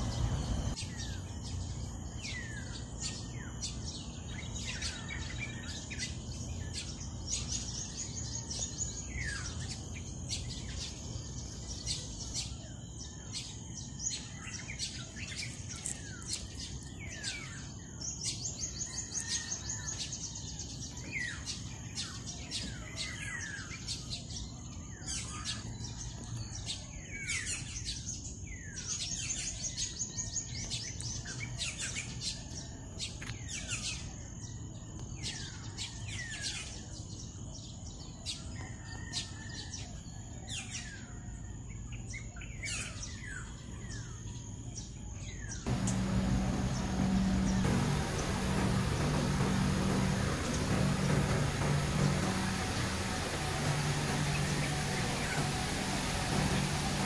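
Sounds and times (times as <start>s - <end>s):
birds chirping and trilling: 0.0s - 24.5s, 44.8s - 57.0s
low outdoor rumble: 45.7s - 57.0s.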